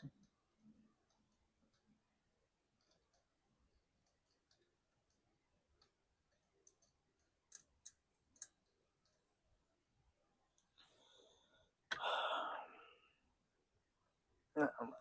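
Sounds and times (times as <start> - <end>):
small tools clicking on circuit board: 0.0 - 2.0, 2.6 - 9.3.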